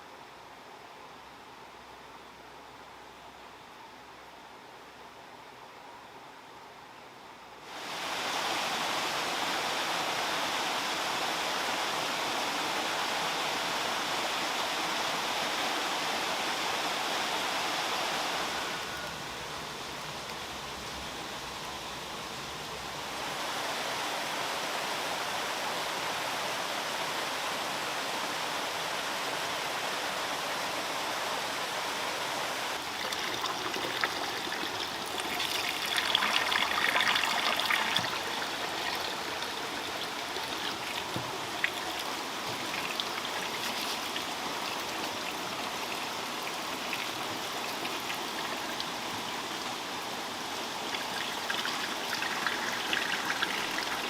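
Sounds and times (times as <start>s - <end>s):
running water: 32.7s - 54.0s.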